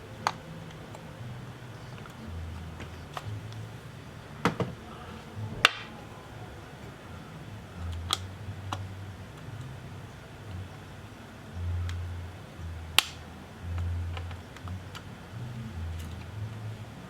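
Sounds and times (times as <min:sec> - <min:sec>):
faint low hum: 0:00.0 - 0:17.0
sharp clicks and light taps: 0:13.0 - 0:13.2.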